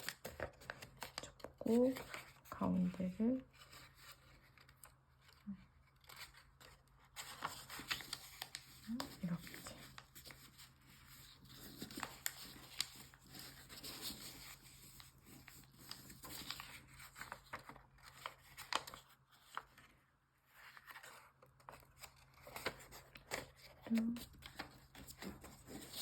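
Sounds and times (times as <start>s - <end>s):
crisp paper crease clicks: 0.0s - 2.6s, 3.6s - 19.9s
paper rustling and crinkling: 0.0s - 26.0s.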